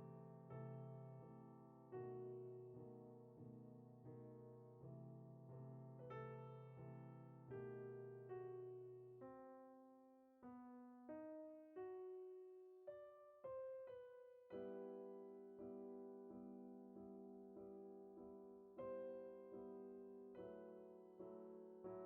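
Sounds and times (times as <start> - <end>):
quiet piano music: 0.0 - 22.0.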